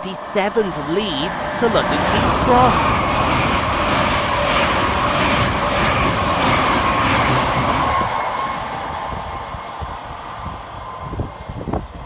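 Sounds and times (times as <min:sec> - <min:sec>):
train passing at speed: 0:00.0 - 0:12.0.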